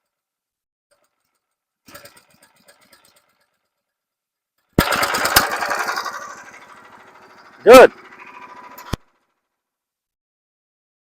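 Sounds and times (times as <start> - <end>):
small gasoline engine running: 0.9 - 4.0, 4.7 - 9.7.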